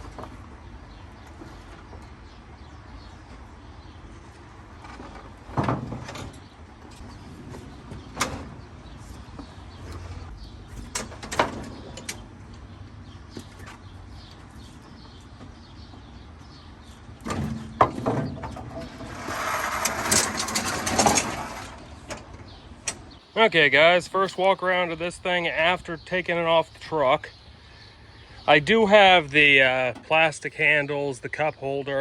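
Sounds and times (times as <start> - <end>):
metal clanks and knocks: 17.2 - 23.0
scraping rush: 18.6 - 22.0.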